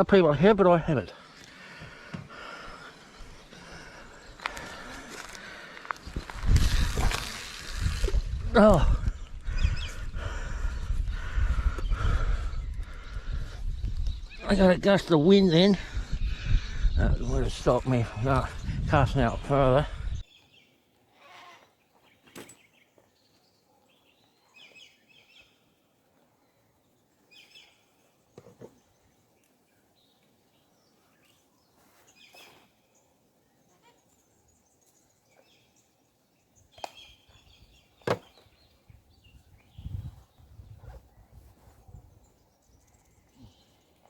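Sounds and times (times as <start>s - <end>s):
birds chirping: 0.0s - 7.5s, 8.6s - 44.0s
wind gusts on microphone: 6.0s - 20.2s, 38.8s - 43.6s.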